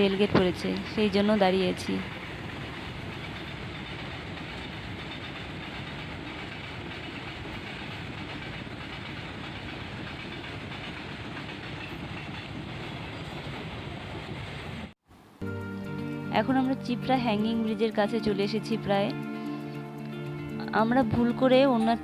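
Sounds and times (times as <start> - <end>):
train wheels on track: 0.0 - 15.0.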